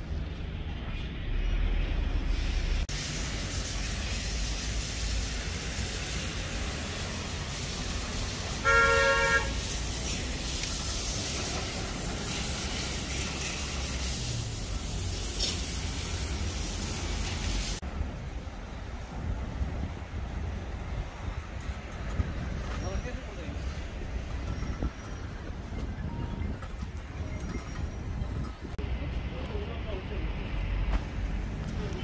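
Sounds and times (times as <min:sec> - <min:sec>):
vehicle horn honk: 0:08.6 - 0:09.6.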